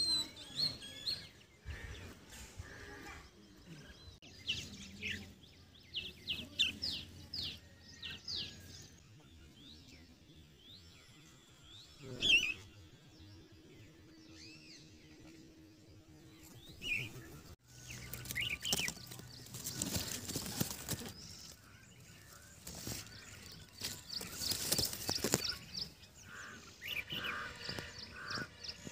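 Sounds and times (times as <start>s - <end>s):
bird chirping: 3.3s - 28.9s
rustling noise: 18.0s - 21.6s, 22.2s - 25.9s.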